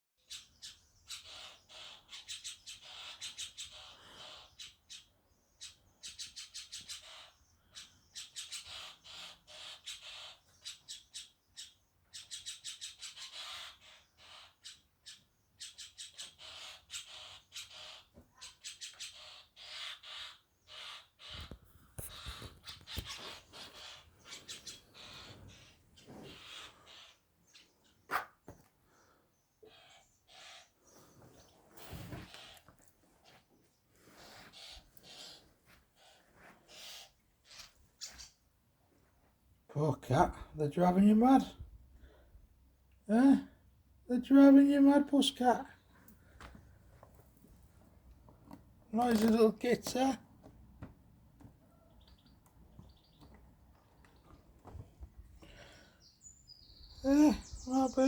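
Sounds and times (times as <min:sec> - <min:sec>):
starlings chattering: 0:15.6 - 0:28.2, 0:48.9 - 0:50.2, 0:55.4 - 0:58.0.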